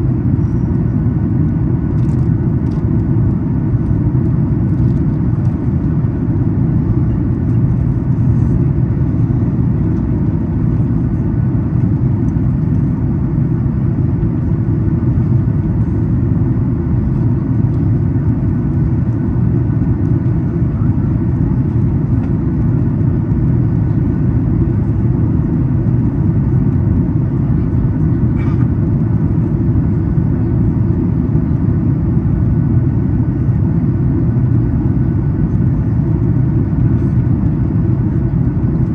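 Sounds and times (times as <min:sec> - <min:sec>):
airliner cabin roar: 0:00.0 - 0:38.9.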